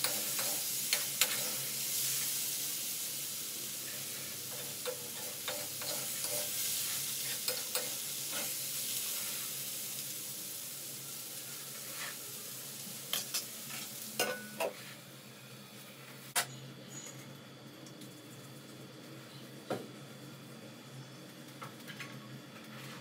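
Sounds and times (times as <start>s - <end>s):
potatoes sizzling in oil: 0.0s - 15.3s.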